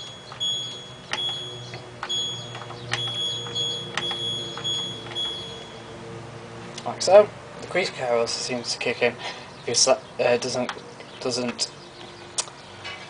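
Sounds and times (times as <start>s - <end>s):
short high beeps: 0.0s - 5.9s.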